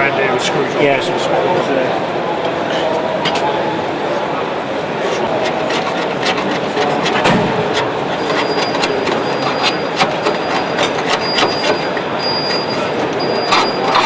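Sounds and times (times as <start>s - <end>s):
background hubbub: 0.0s - 14.0s
high-pitched squeal: 7.1s - 14.0s.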